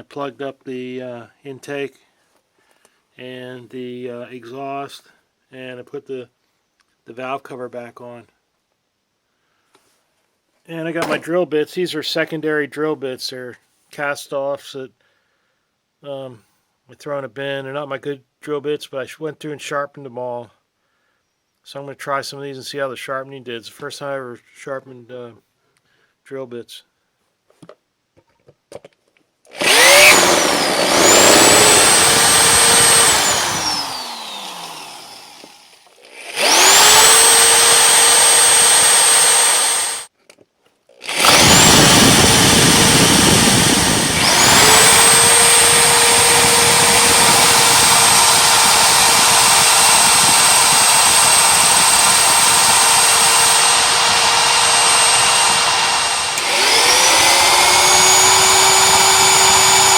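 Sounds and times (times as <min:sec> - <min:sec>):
drill bit grinding metal: 0:29.5 - 0:40.1, 0:41.0 - 0:59.9
electric drill whining: 0:29.5 - 0:40.1, 0:41.0 - 0:59.9.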